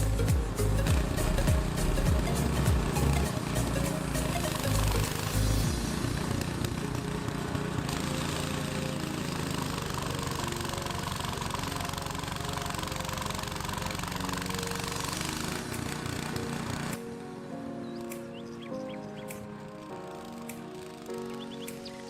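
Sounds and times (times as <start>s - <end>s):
small gasoline engine running: 0.0s - 17.0s.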